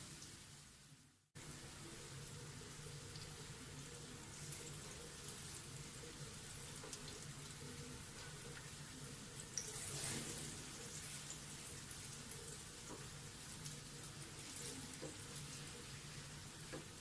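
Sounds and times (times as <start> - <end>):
frying oil sizzling and popping: 0.0 - 17.0.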